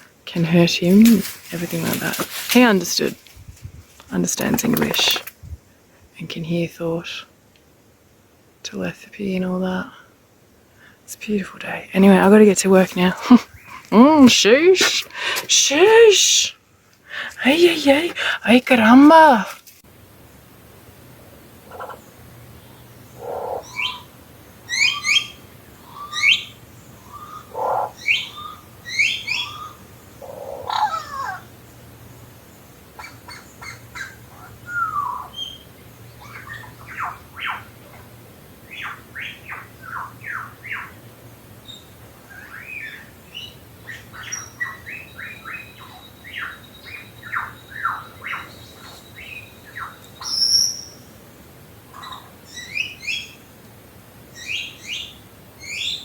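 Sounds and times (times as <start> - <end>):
birds squawking: 23.2 - 24.1, 24.7 - 31.5.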